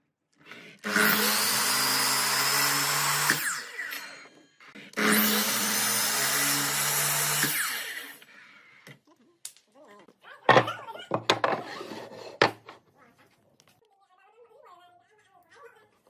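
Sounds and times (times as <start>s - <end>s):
power tool motor running: 0.8s - 4.4s, 5.0s - 8.2s.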